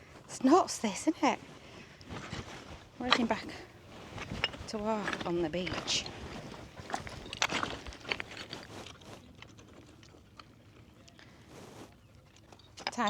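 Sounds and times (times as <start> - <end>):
footsteps crunching on rubble: 1.4 - 9.5.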